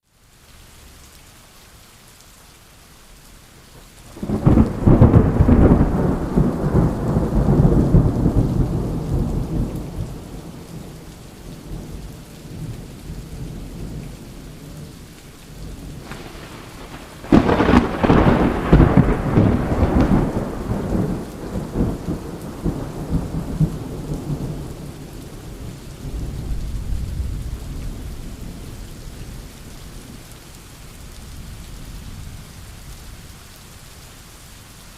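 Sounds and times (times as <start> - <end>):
steady rain: 0.0 - 34.9
thunder rumbling: 4.1 - 30.2.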